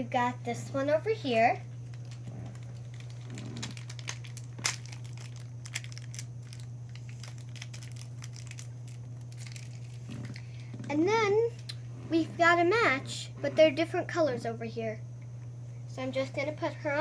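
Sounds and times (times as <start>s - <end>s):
plastic packaging crinkling: 1.7s - 10.8s.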